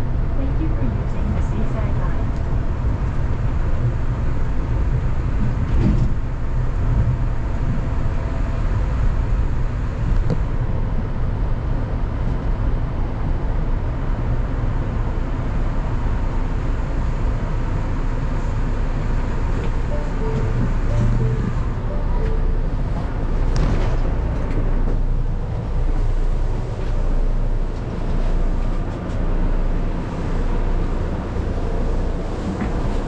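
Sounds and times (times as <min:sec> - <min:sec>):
train running low rumble: 0:00.0 - 0:33.0.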